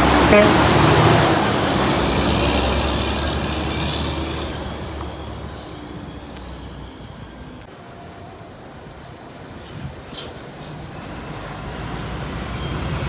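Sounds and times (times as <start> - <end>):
truck engine running: 0.0 - 6.8.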